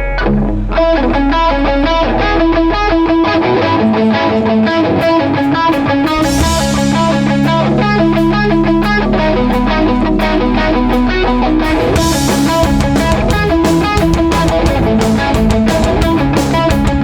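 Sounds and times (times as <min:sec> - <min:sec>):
punk band playing loud: 0:04.9 - 0:17.0
cymbal crash: 0:06.2 - 0:09.8.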